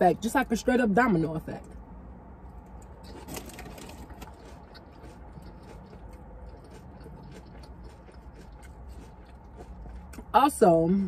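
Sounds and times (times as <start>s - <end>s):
faint chewing: 2.6s - 10.3s.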